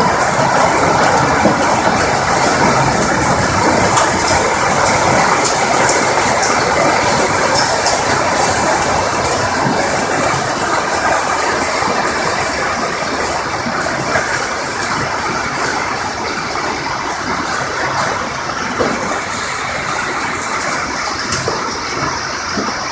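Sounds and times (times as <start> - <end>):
hailstones clattering on hard surface: 0.0 - 22.9
heavy rain: 0.0 - 22.9.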